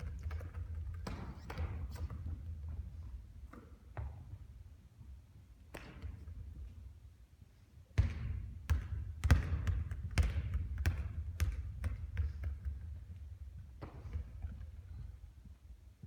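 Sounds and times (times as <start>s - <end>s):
basketball bouncing on a court: 0.0s - 4.6s, 8.0s - 15.3s.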